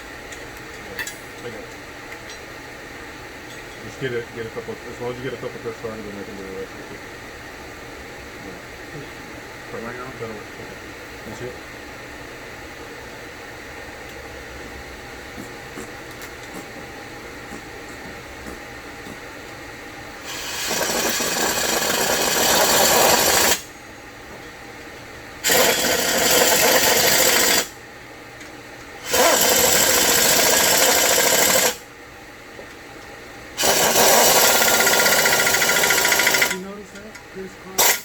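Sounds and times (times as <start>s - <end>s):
power tool running: 20.2s - 23.7s, 25.4s - 27.8s, 29.0s - 31.8s, 33.6s - 36.8s, 37.8s - 38.0s.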